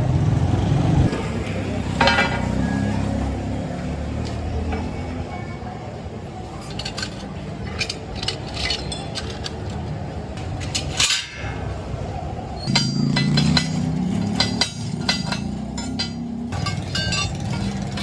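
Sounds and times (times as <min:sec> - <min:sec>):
metal clinking and knocking: 0:01.1 - 0:02.7, 0:06.6 - 0:11.8, 0:12.6 - 0:18.0.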